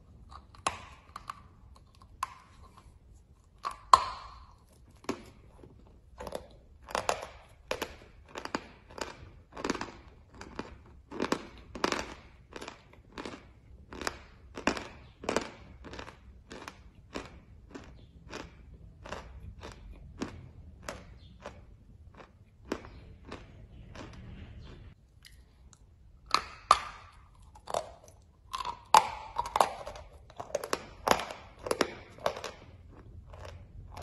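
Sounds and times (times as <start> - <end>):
chalk crunching while chewed: 0.0 - 34.0.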